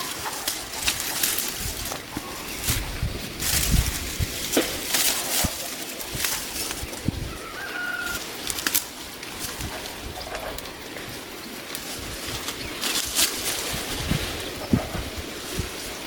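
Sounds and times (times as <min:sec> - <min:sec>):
rustling swishes: 0:00.0 - 0:07.3.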